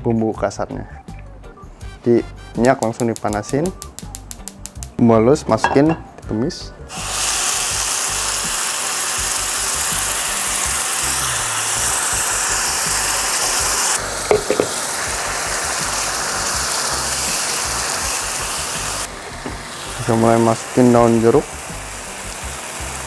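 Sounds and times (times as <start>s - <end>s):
spice paste sizzling in hot oil: 6.9s - 23.0s.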